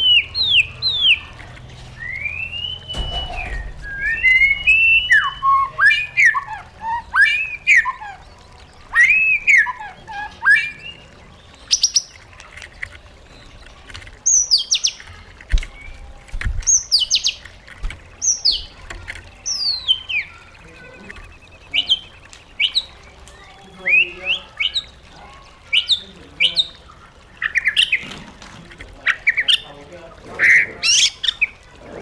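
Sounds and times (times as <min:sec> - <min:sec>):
high sharp bird notes: 0:02.0 - 0:11.2
bird singing whistled phrases: 0:02.0 - 0:12.2, 0:19.4 - 0:24.9.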